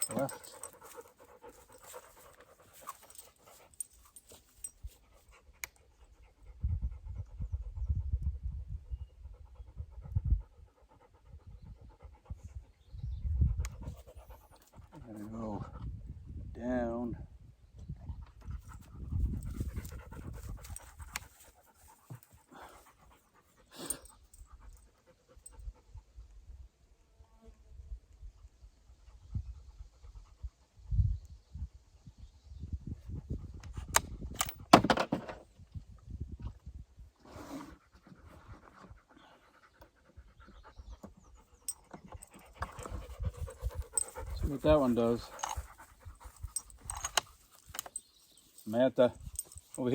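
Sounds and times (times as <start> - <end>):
dog panting: 0.0 - 4.0, 18.4 - 26.0, 37.9 - 47.4.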